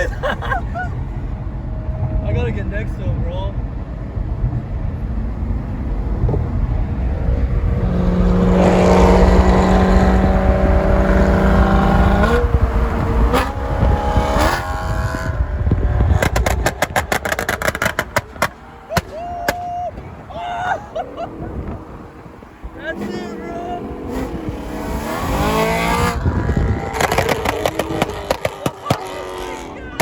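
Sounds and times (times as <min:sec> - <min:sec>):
car engine revving: 0:04.5 - 0:30.0
exhaust pops and crackles: 0:07.7 - 0:20.3, 0:25.2 - 0:30.0.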